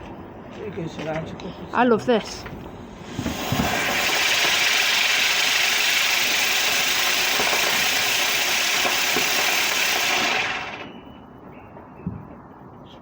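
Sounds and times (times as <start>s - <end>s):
firework fountain hissing and crackling: 2.8s - 11.0s.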